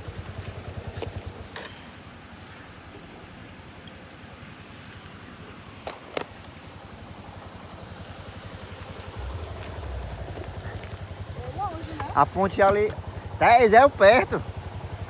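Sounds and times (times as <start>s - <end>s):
vehicle engine pulsing: 7.6s - 15.0s.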